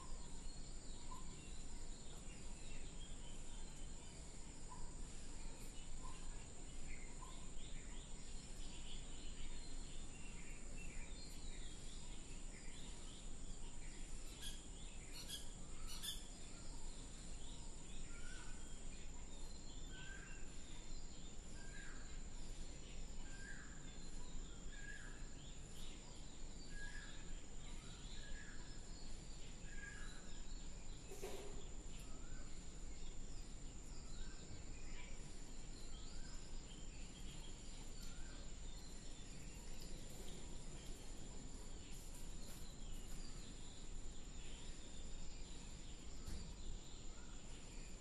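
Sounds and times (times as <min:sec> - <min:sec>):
steady high hiss: 0:00.0 - 0:48.0.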